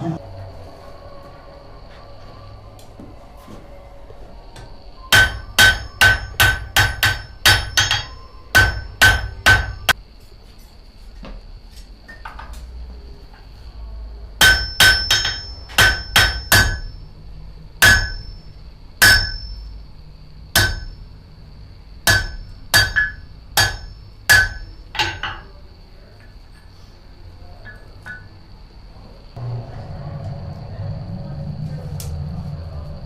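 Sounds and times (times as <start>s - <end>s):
hammer striking metal on anvil: 5.1s - 10.0s, 14.4s - 17.1s, 17.8s - 19.7s, 20.5s - 21.0s, 22.0s - 25.5s.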